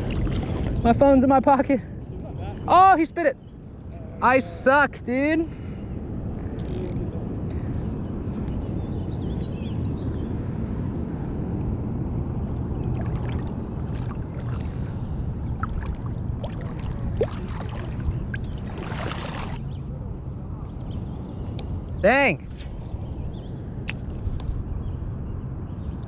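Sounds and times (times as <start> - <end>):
river water rushing: 16.5 - 19.6.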